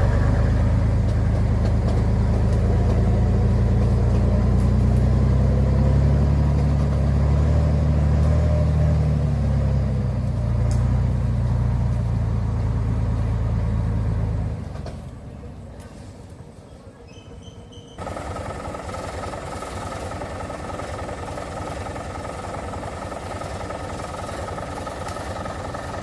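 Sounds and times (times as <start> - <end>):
truck engine running: 0.0 - 15.7, 18.0 - 26.0.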